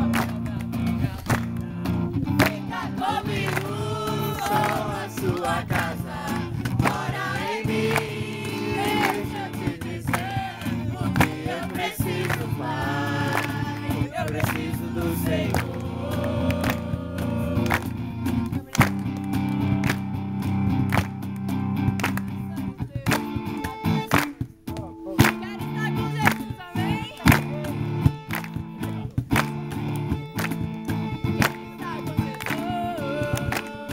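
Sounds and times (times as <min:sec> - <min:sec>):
voices singing: 0:00.0 - 0:19.2, 0:25.6 - 0:28.0, 0:31.5 - 0:33.9
sustained instrumental chords: 0:01.9 - 0:22.6.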